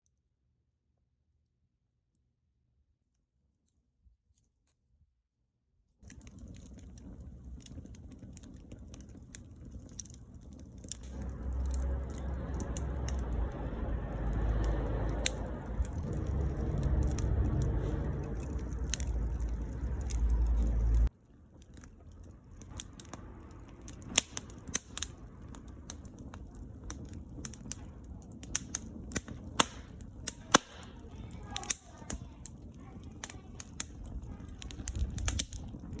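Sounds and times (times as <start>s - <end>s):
firewood crackling and popping: 6.0s - 36.0s
loud low rumble: 10.8s - 21.1s.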